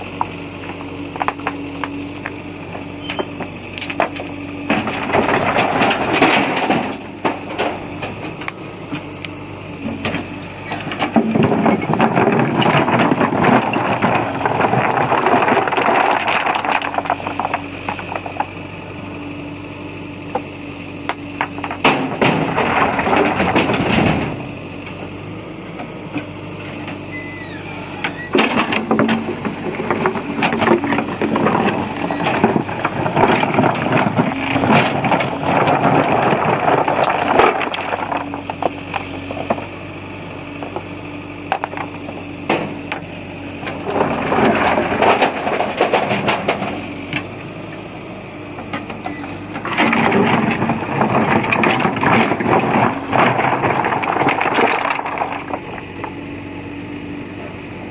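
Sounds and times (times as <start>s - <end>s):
diesel engine running: 0.0s - 57.9s
stone crunching and rattling: 3.8s - 8.6s, 10.0s - 18.6s, 21.3s - 24.5s, 28.3s - 39.8s, 40.5s - 47.2s, 49.6s - 56.2s.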